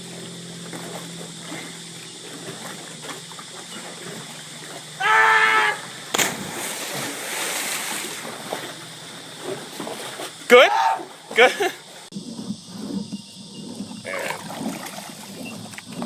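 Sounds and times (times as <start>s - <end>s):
water churning: 0.0s - 16.0s
splash into water: 0.8s - 10.7s, 14.1s - 15.5s
person yelling: 5.0s - 5.8s, 10.5s - 11.7s.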